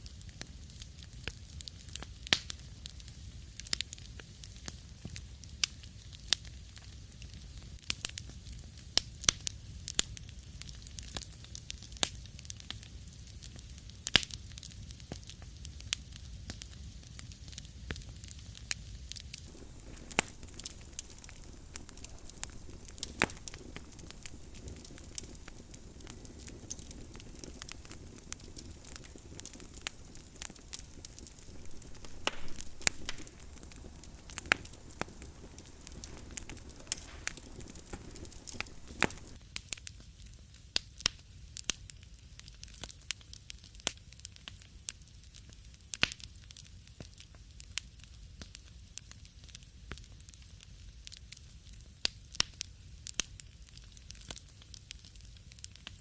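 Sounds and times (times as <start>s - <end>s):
wood fire crackling and popping: 0.0s - 39.7s, 45.4s - 56.0s
soft hiss: 19.4s - 39.4s.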